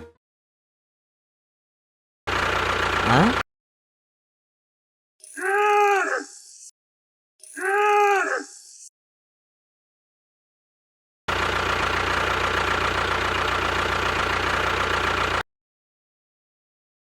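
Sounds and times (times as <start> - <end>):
engine running steadily: 2.3 - 3.4, 11.3 - 15.4.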